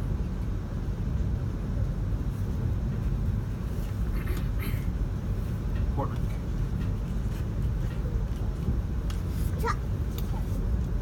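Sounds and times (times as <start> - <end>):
train car rumble from inside: 0.0 - 11.0.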